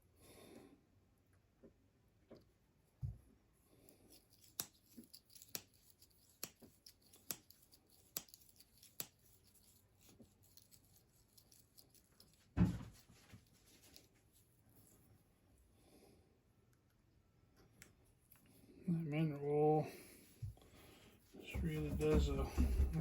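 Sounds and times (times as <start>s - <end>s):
dull thump: 12.6s - 12.9s.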